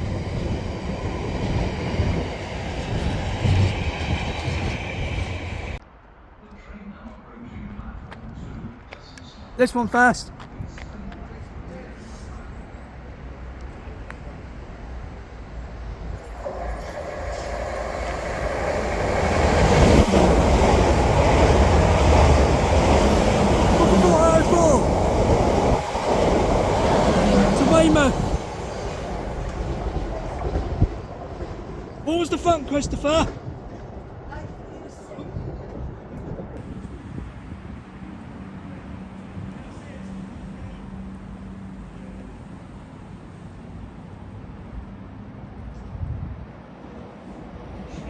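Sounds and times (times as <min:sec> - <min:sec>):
train wheels rumbling on rails: 0:00.0 - 0:05.8, 0:10.4 - 0:36.9.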